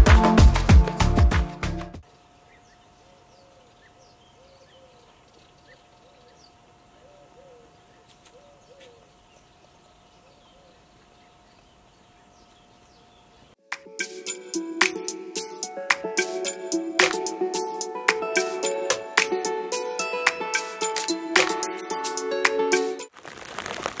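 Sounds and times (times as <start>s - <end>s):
music: 0.0s - 2.0s, 13.6s - 23.1s
small birds chirping: 2.2s - 13.6s.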